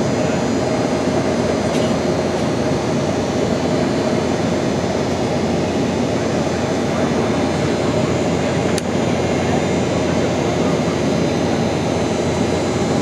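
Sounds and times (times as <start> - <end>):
aeroplane engine and airflow: 0.0 - 13.0.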